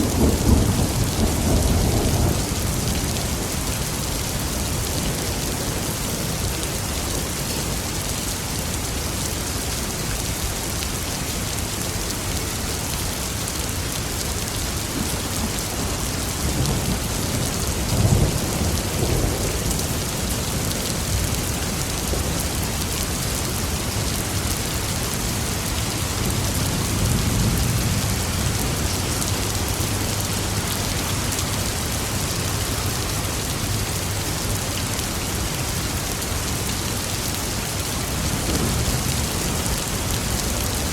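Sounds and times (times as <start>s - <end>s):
thunder rumbling: 0.0s - 4.4s
heavy rain falling: 0.0s - 40.9s.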